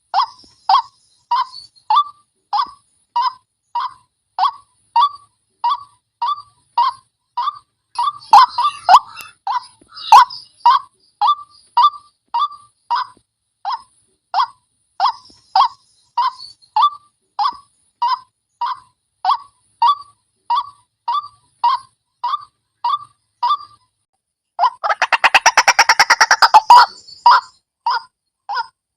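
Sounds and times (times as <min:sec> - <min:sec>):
harsh wak bird calls: 0:07.4 - 0:12.6, 0:24.6 - 0:27.6.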